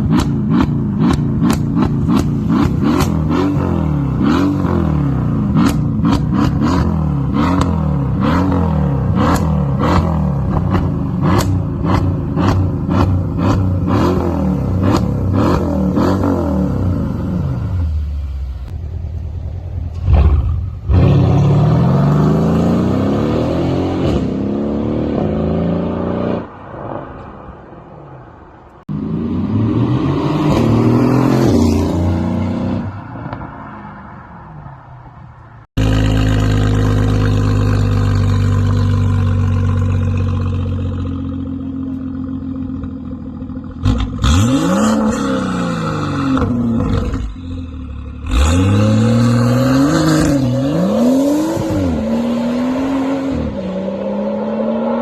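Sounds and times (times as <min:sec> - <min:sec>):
car engine revving: 0:00.0 - 0:18.8, 0:35.7 - 0:55.0.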